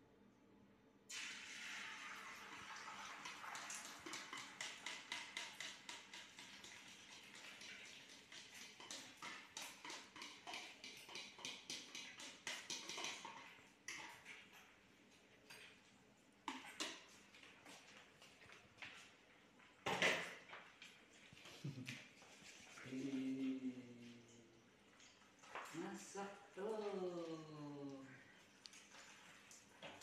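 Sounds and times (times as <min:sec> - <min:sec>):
eggs sizzling in hot oil: 0:01.1 - 0:14.4.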